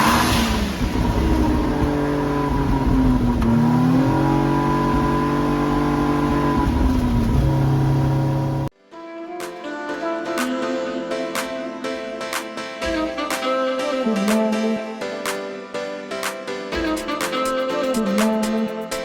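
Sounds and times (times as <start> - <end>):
rotary engine revving and idling: 0.0 - 8.7.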